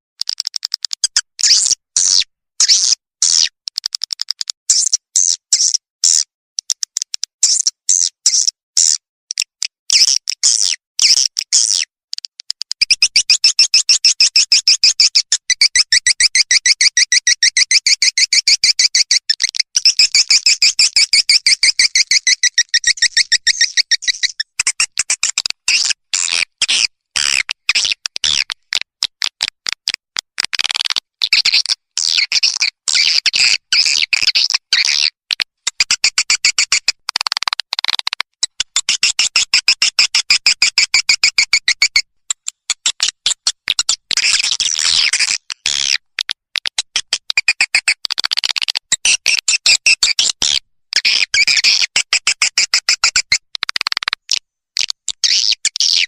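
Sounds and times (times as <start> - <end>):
swiftlet calls twittering: 19.8 - 24.9.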